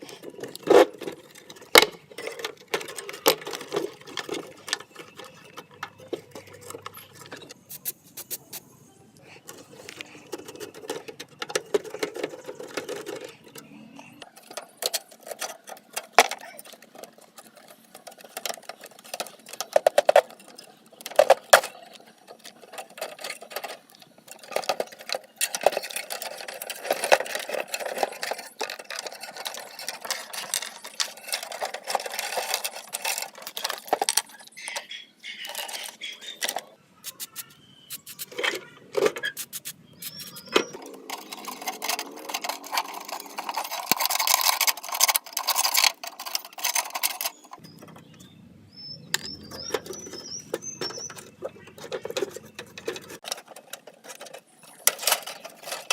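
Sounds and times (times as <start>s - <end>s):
scraping on metal fan parts: 0.0s - 8.6s, 9.3s - 48.2s, 49.2s - 55.9s
metal clicks and knocks: 49.1s - 55.9s.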